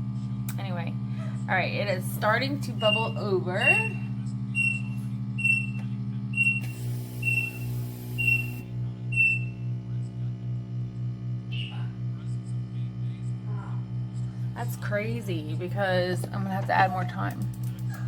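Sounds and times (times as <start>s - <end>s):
vacuum pump pulsing hum: 0.0s - 18.0s
short high beep: 4.6s - 5.8s, 6.4s - 8.6s, 9.2s - 9.6s.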